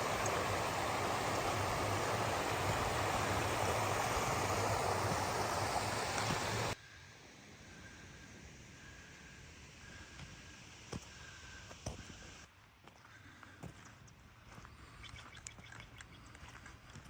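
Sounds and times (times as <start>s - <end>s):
flowing water rushing: 0.0s - 6.8s.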